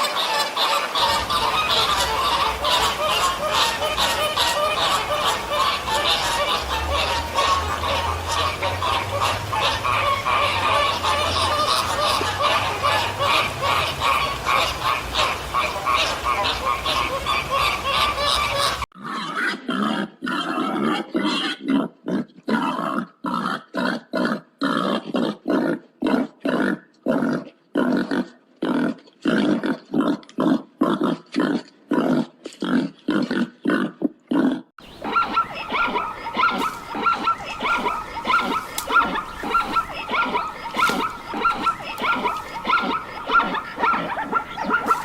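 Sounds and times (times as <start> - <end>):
flock of fowl calling: 0.0 - 18.9, 34.8 - 45.0
ducks quacking: 0.0 - 19.2, 34.8 - 45.0
animal grunting: 19.6 - 45.0.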